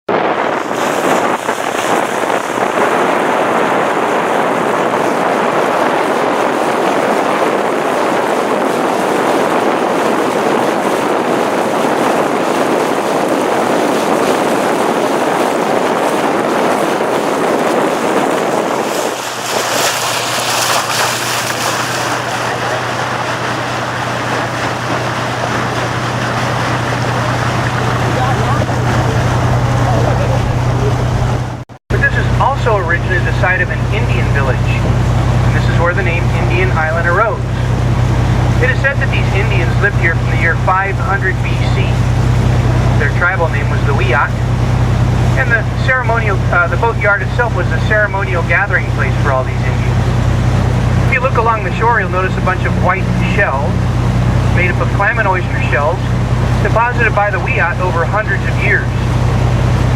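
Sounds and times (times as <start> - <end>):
water noise: 0.0 - 59.9
boat engine hum: 0.1 - 59.9
wind rushing over microphone: 0.1 - 59.9.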